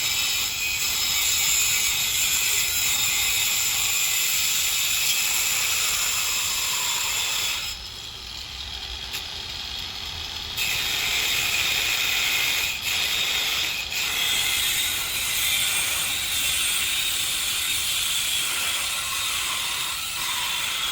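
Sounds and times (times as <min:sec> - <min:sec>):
angle grinder grinding: 0:10.6 - 0:20.9.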